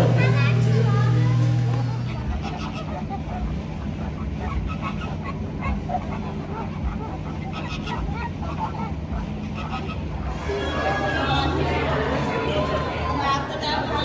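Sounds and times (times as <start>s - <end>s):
flock of birds honking: 2.0s - 14.0s
low hum: 10.2s - 14.0s.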